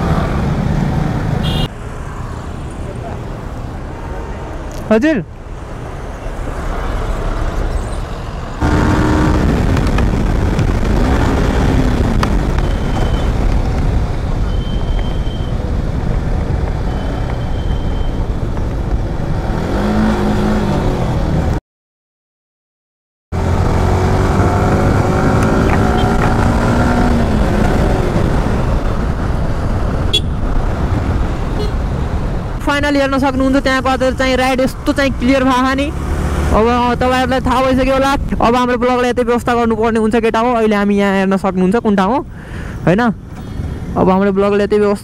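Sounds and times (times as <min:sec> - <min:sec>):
motorcycle engine accelerating: 0:08.6 - 0:13.8, 0:23.4 - 0:31.2
wind rumble on microphone: 0:08.6 - 0:21.6, 0:23.4 - 0:34.1.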